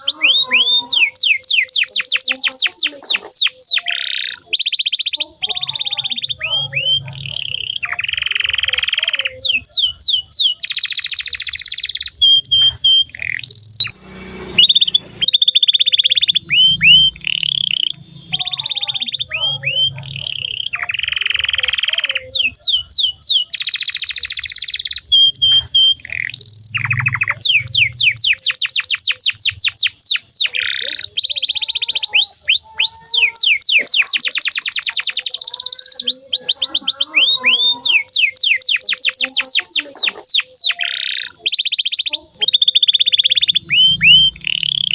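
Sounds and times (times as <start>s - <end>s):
canary singing: 0.0s - 44.9s.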